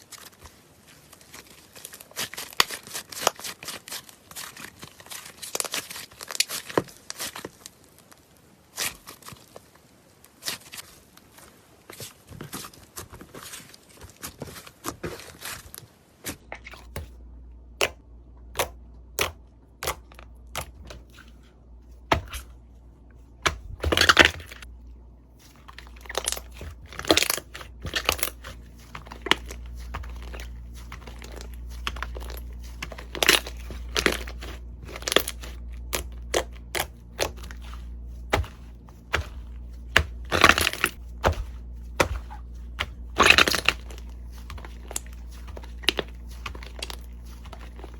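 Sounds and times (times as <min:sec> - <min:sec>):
slime squeezed crackling: 0:25.5 - 0:47.9.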